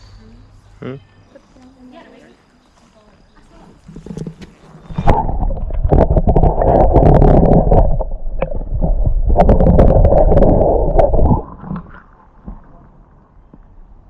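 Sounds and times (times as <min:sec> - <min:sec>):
microphone crackles: 0:03.6 - 0:12.0
muffled low rumble: 0:05.0 - 0:11.9.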